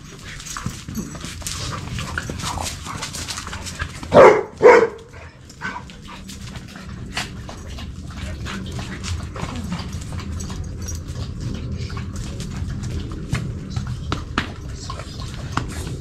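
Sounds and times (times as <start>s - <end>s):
dog barking: 4.1s - 5.1s.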